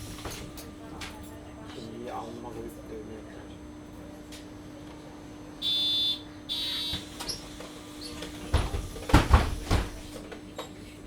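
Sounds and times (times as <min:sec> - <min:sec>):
bus low hum: 0:00.0 - 0:02.4
electronic door warning beeps: 0:05.6 - 0:07.5
bus doors thumping shut: 0:08.2 - 0:10.2.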